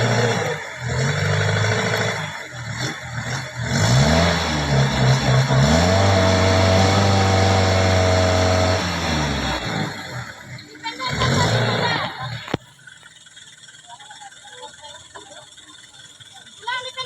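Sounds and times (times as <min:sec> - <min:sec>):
vehicle engine revving: 0:00.0 - 0:13.8.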